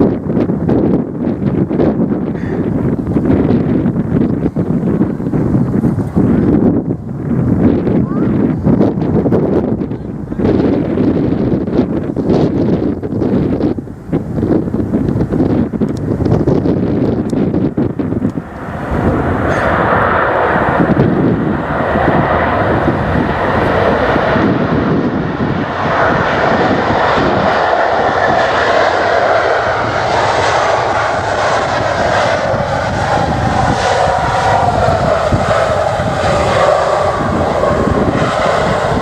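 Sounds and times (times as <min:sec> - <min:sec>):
airliner engines passing: 0:00.0 - 0:39.0
wind buffeting microphone: 0:00.0 - 0:39.0.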